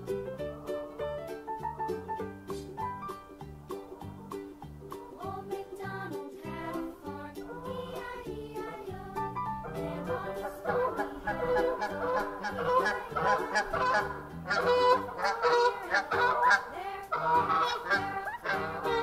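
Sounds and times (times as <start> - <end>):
geese honking: 9.6 - 19.0.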